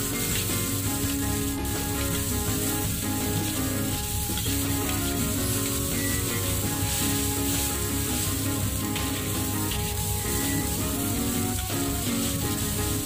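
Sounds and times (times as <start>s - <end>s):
background music: 0.0s - 13.0s
fried rice sizzling in a wok: 0.0s - 13.0s
metal spatula stirring in wok: 0.0s - 13.0s.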